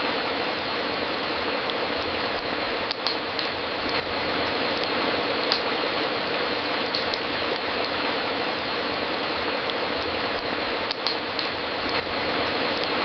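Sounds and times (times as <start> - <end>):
wood fire crackling in fireplace: 0.0 - 13.0.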